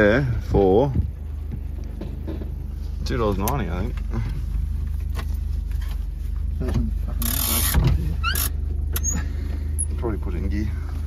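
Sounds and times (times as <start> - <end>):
car engine running: 0.0 - 11.0
short rustle: 2.4 - 8.5.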